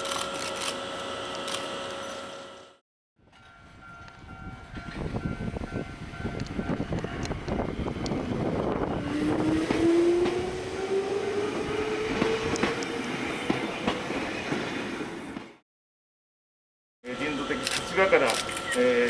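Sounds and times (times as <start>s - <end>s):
electric motor whine rising: 7.9s - 13.3s
train clattering on rails: 12.0s - 14.7s.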